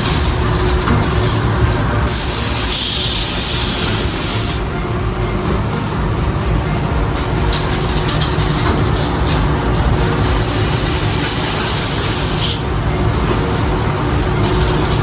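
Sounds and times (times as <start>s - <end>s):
loud hiss: 0.0s - 5.1s, 9.6s - 15.0s
cutting machine rumbling: 0.0s - 15.0s.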